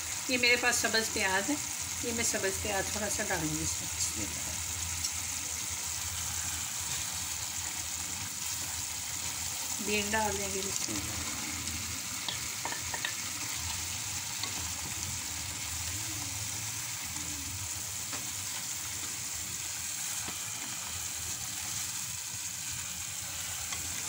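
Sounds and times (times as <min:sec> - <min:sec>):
food sizzling in a pan: 0:00.0 - 0:24.0
spoon tapping a pan: 0:12.2 - 0:13.2.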